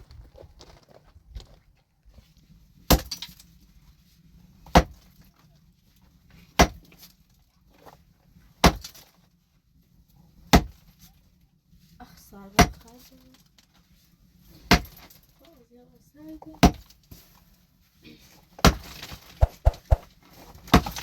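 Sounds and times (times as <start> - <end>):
hand tool striking hard material: 18.6 - 20.1.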